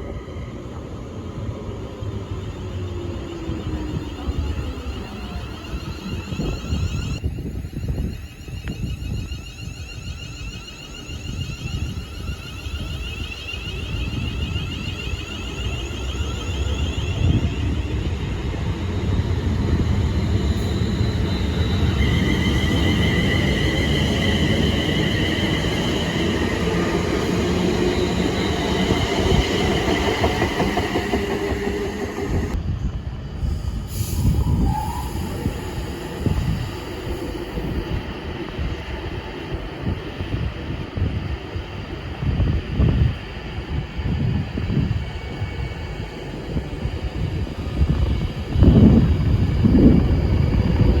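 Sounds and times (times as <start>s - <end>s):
high steady squeal: 0.0s - 51.0s
train rumbling: 0.0s - 51.0s.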